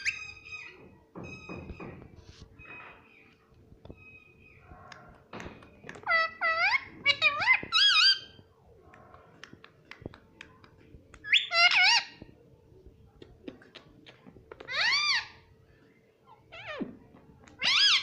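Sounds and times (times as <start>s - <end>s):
parrot squawking: 6.0s - 8.4s, 11.3s - 12.2s, 14.7s - 15.4s, 17.6s - 18.0s.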